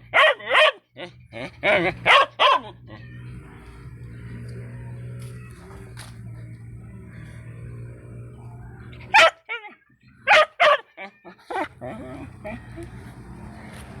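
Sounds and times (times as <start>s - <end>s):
dog barking: 0.0s - 3.8s, 8.9s - 14.0s
steady low hum: 1.1s - 9.3s, 11.5s - 14.0s.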